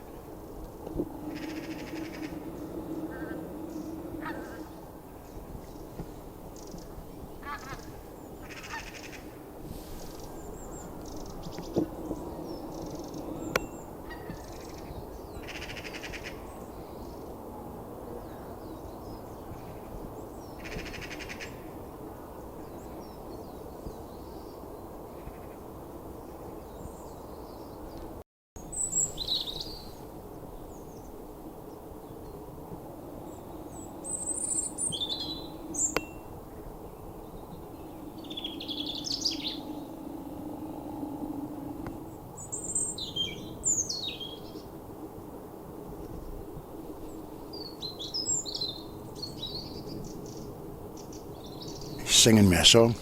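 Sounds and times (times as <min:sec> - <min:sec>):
low background hum: 0:00.0 - 0:23.7, 0:29.1 - 0:53.0
bird rattling trills: 0:01.1 - 0:05.8
small birds chirping: 0:26.6 - 0:40.0.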